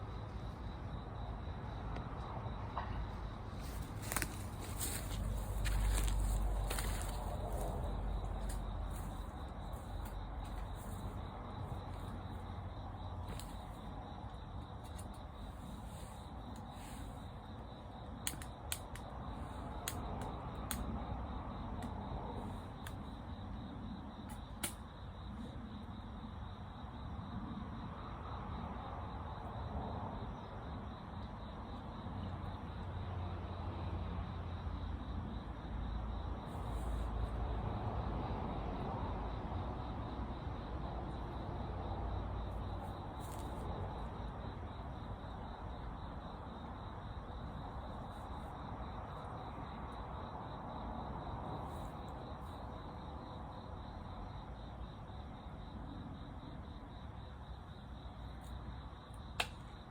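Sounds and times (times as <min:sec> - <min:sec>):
low outdoor rumble: 0:00.0 - 0:24.0
crickets chirping: 0:00.0 - 0:59.9.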